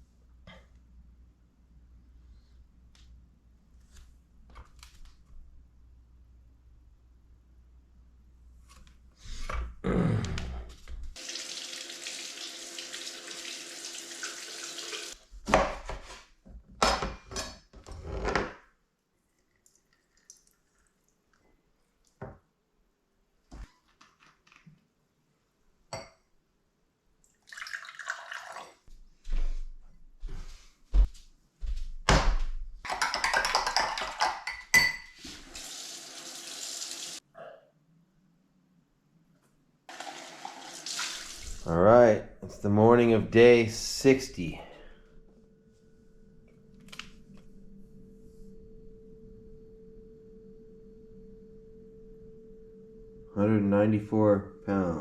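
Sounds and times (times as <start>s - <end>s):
water running from a tap: 11.2s - 15.2s, 35.2s - 37.2s, 39.9s - 41.7s
dishes knocking and clinking: 32.1s - 35.2s.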